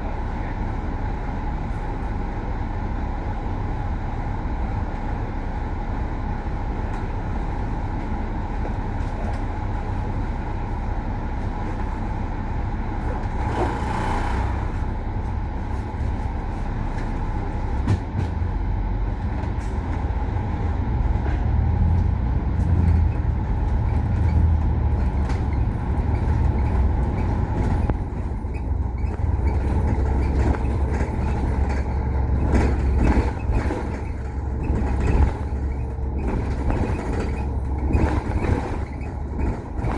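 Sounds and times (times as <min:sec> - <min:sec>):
bus engine rumble and whine: 0:00.0 - 0:39.9
rattles and knocks: 0:21.2 - 0:39.9.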